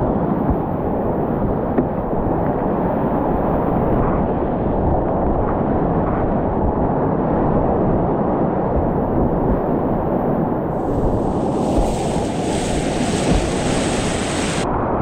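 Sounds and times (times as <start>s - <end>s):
rapids rushing water: 10.7s - 14.7s.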